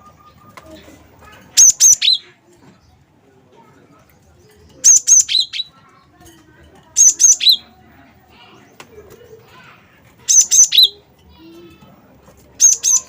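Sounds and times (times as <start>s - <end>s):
bird whistled song: 1.6s - 2.2s, 4.8s - 5.8s, 7.0s - 7.7s, 10.3s - 11.0s, 12.6s - 13.0s.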